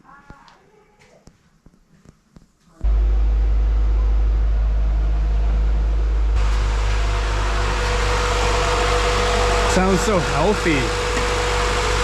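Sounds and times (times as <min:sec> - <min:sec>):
car engine running loud: 0:02.8 - 0:12.0.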